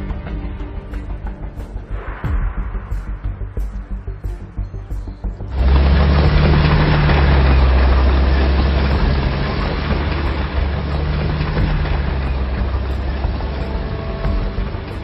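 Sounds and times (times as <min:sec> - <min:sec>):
large engine running: 0:05.2 - 0:15.0.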